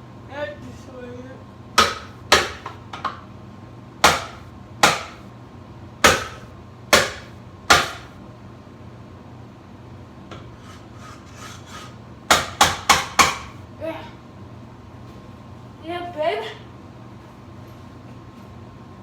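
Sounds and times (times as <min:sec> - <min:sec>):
hammer striking ceiling fan: 0:01.8 - 0:03.2, 0:04.0 - 0:05.2, 0:06.0 - 0:08.1, 0:12.3 - 0:13.6.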